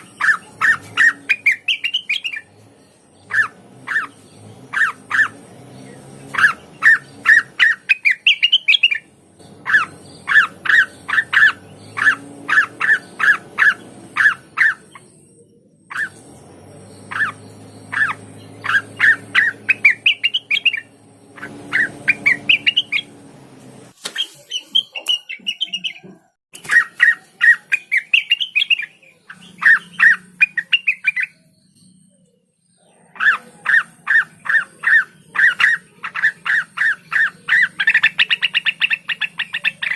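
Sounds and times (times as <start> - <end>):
bird singing chip notes: 0.0 - 39.9.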